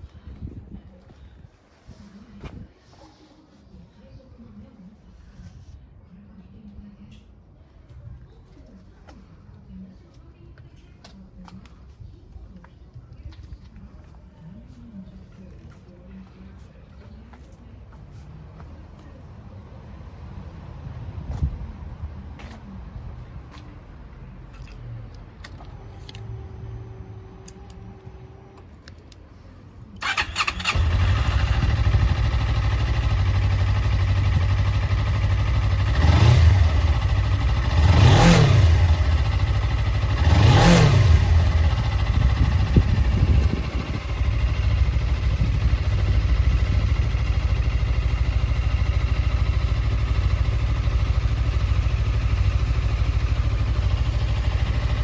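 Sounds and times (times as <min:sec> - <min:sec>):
motorcycle engine idling: 0:30.0 - 0:55.0
motorcycle engine starting: 0:30.0 - 0:55.0
engine revving: 0:35.6 - 0:43.6.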